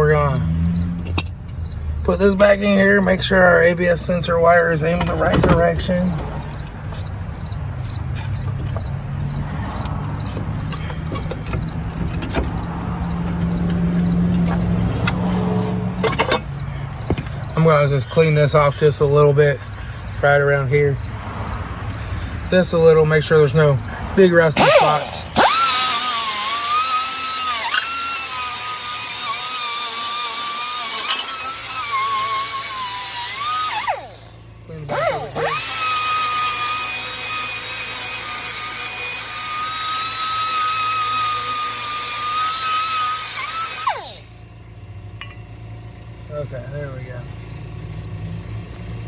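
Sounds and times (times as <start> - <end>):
low mechanical hum: 0.0 - 49.0
light clicks and knocks of metal parts: 4.0 - 21.2
angle grinder whine and hiss: 24.6 - 34.3, 34.9 - 44.4.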